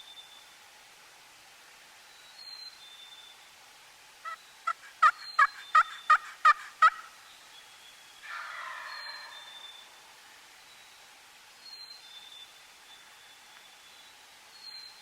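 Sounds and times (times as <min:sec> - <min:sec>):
turkey rattling gobble: 0:05.0 - 0:07.1, 0:08.3 - 0:09.6
turkey yelps: 0:05.0 - 0:07.1, 0:08.3 - 0:09.6.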